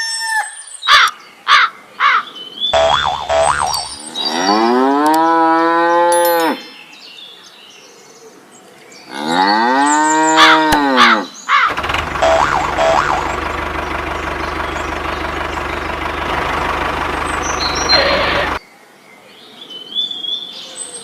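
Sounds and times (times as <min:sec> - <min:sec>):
steady engine hum: 0:02.8 - 0:04.0, 0:11.7 - 0:18.6
cow mooing: 0:02.8 - 0:06.6, 0:09.2 - 0:11.3.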